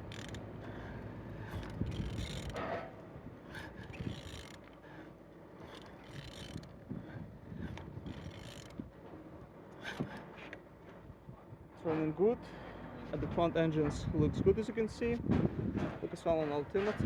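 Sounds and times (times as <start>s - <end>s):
engine turned by hand clicking: 0.0s - 0.8s, 1.4s - 4.8s, 5.6s - 6.9s, 7.6s - 9.0s.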